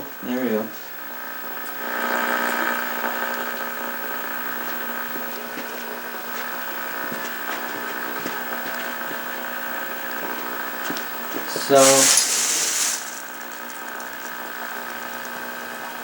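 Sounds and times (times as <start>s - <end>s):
television speaker buzz: 0.0s - 4.8s.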